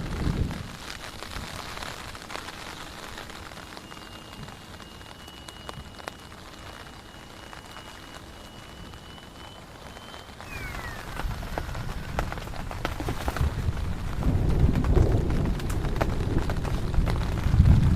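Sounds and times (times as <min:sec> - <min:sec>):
rain falling: 0:00.0 - 0:17.9
thin high tone: 0:03.9 - 0:11.9.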